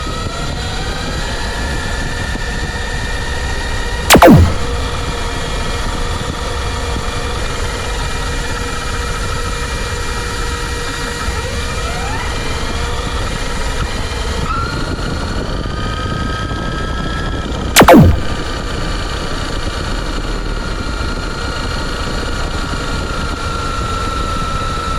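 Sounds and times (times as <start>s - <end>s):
fast falling pitch sweep: 4.1s - 5.0s, 17.8s - 18.5s.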